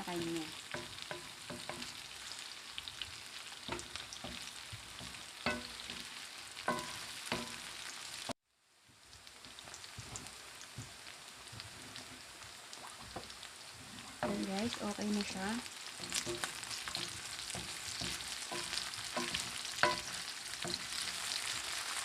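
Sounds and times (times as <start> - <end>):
meat sizzling in a pan: 0.0 - 22.0
utensil scraping a pan: 15.9 - 22.0.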